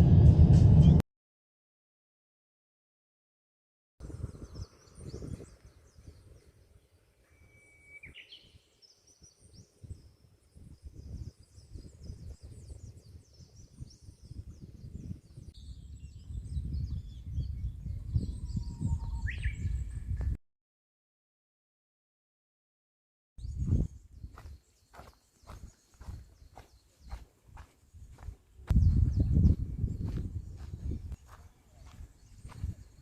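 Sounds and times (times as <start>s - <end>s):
low rumble: 0.0s - 1.0s.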